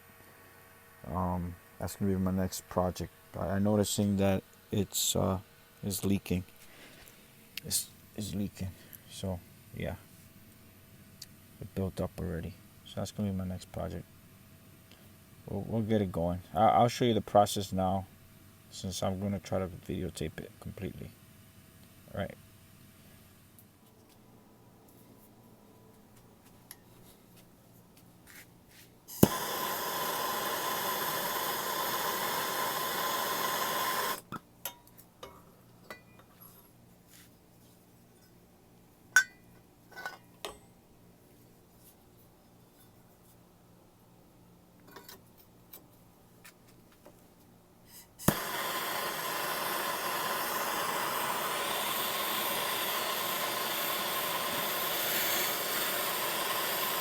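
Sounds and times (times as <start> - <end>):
propane torch hissing: 29.1 - 34.4, 47.9 - 57.0
torch lighting pop: 29.1 - 34.4, 48.2 - 57.0.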